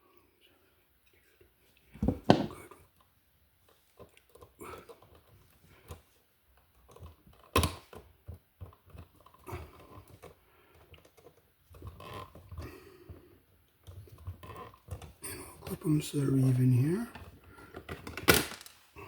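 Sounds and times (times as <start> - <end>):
copper wires clicking and scraping: 13.7 - 18.8.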